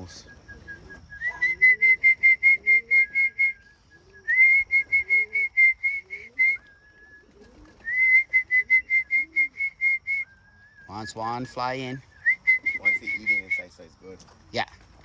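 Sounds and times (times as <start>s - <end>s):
pulsed whistle notes: 0.0s - 11.2s, 12.2s - 13.7s
soft low steady whistle: 0.0s - 11.2s
pigeons cooing: 0.0s - 11.4s, 12.0s - 13.6s.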